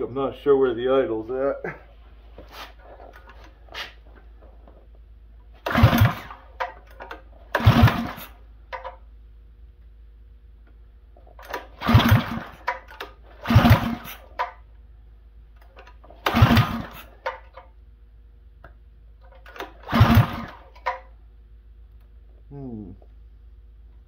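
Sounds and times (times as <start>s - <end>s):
small engine revving and idling: 5.6s - 6.6s, 7.4s - 8.4s, 11.4s - 14.4s, 16.1s - 17.2s, 19.5s - 20.9s.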